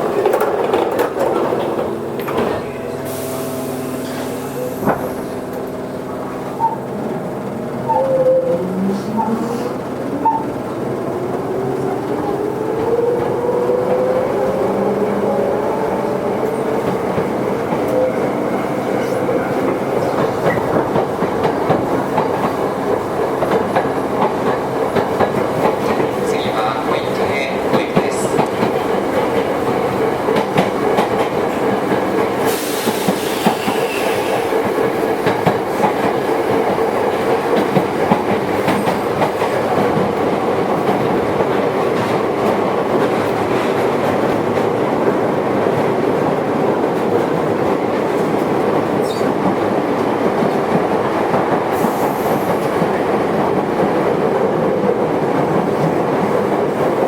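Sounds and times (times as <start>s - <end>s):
rail-joint clicks: 0.0s - 7.0s, 18.9s - 44.7s, 46.9s - 54.1s
train wheel and motor noise: 0.0s - 57.0s.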